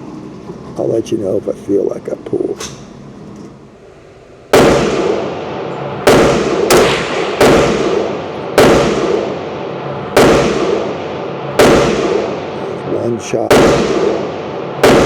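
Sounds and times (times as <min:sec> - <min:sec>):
gunshots with echo: 0:04.5 - 0:15.0.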